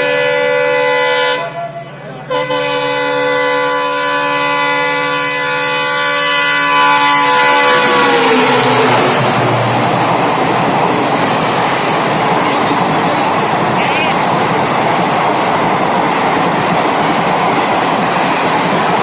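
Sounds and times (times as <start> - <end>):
train horn blast: 0.0 - 9.8
train rumbling past: 0.0 - 19.0.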